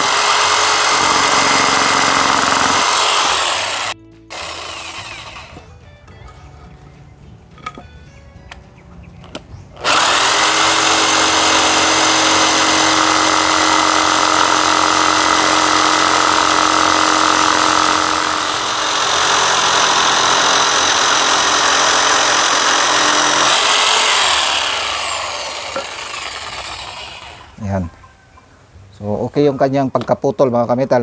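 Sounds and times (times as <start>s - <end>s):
jigsaw cutting wood: 0.0s - 5.6s, 9.8s - 27.6s.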